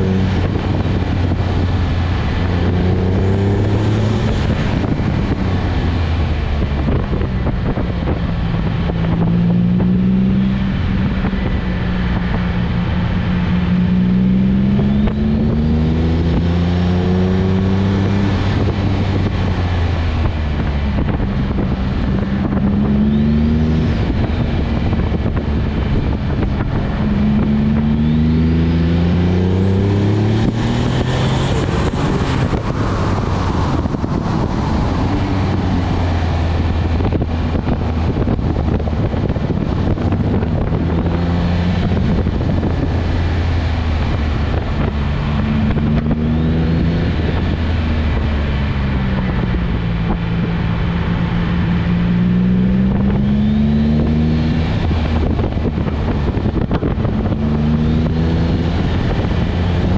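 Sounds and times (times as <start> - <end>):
car engine accelerating: 0.0 - 59.9
steady rushing noise: 0.0 - 59.9.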